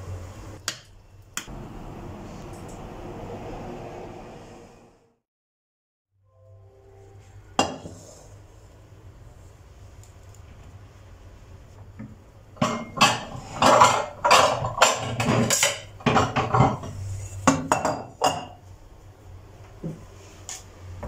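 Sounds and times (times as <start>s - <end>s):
hard objects clattering together: 12.7s - 16.9s.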